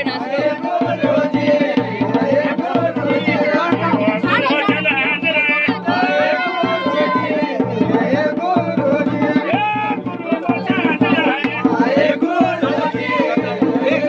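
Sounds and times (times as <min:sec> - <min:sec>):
drums playing fast rhythm: 0:00.0 - 0:14.0
pitched melody line: 0:03.0 - 0:06.2, 0:09.6 - 0:12.0.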